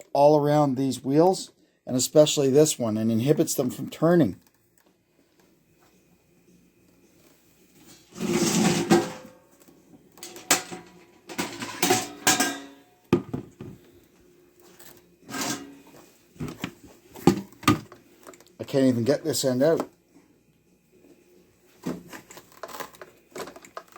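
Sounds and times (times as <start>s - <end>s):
plastic parts clattering and scraping: 10.2s - 12.6s, 21.9s - 23.9s.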